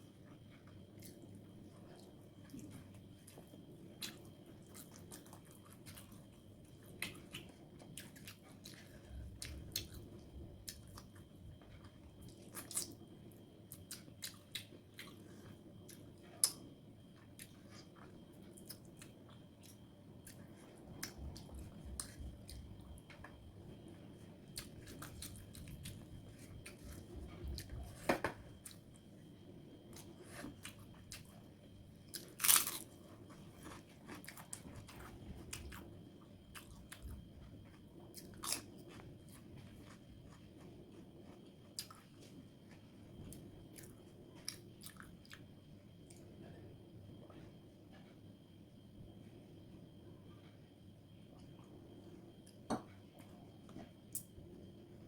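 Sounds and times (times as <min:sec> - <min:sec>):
wet chewing sounds: 0:32.1 - 0:45.5.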